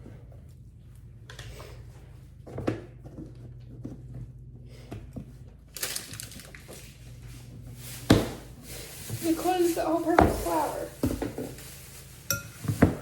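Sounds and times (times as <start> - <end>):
paper bag rustling: 5.7 - 13.0.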